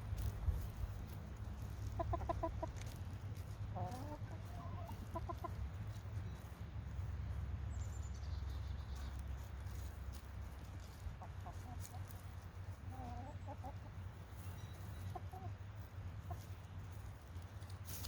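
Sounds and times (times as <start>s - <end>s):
steady low rumble: 0.0s - 13.0s
chickens clucking: 0.0s - 18.0s.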